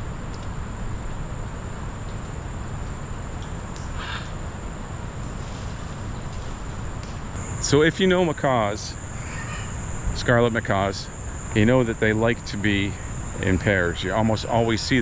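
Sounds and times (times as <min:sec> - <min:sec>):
high insect drone: 0:00.0 - 0:15.0
brief animal call: 0:09.1 - 0:09.8.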